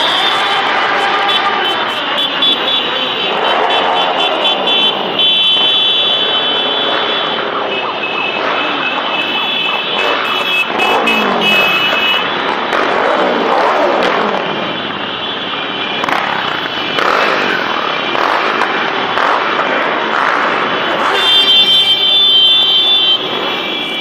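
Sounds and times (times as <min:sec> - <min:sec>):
motor vehicles passing: 0:00.0 - 0:15.0, 0:15.7 - 0:24.0.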